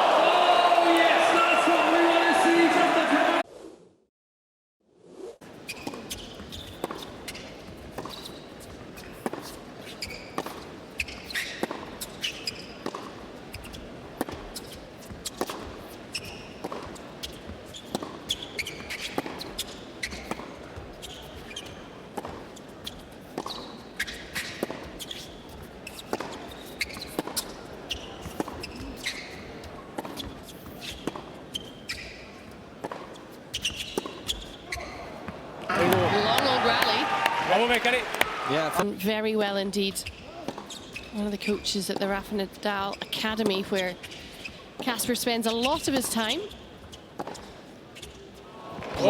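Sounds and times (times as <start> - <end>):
shoes squeaking on court: 5.4 - 38.9, 39.8 - 49.0
tennis balls bouncing on court: 5.7 - 38.9, 40.0 - 49.0
tennis balls hit by rackets: 9.0 - 13.2, 17.8 - 20.5, 23.4 - 25.2, 25.8 - 27.5, 32.8 - 38.8, 47.2 - 47.6.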